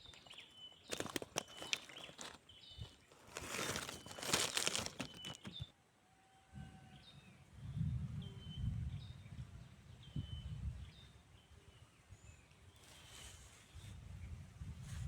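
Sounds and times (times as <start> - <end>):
bird chirping: 0.0 - 5.7
brief rustle: 0.0 - 5.7.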